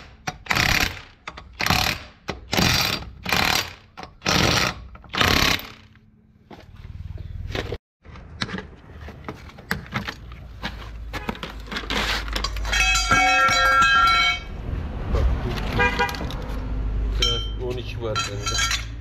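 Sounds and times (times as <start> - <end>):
tools clinking on metal: 12.3 - 14.5, 17.2 - 19.0.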